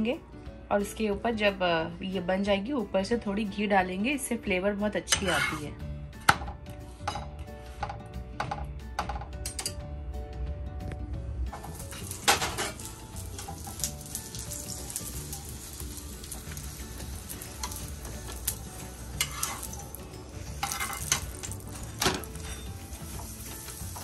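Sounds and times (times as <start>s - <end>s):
spatula scraping and tapping pan: 5.1s - 5.7s, 6.3s - 9.2s, 17.6s - 19.9s, 20.5s - 24.0s
flatbread sizzling in a pan: 11.6s - 24.0s.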